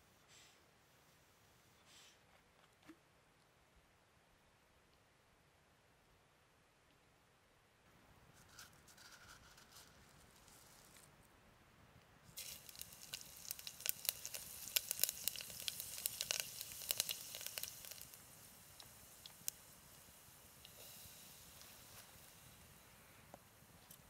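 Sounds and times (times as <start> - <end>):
food sizzling in hot oil: 12.4 - 23.8
oil spitting crackles: 12.4 - 24.0.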